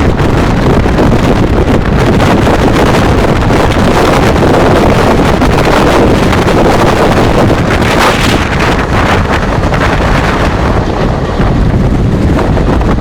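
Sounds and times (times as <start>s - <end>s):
fast train rushing: 0.0s - 13.0s
wind buffeting microphone: 0.0s - 13.0s.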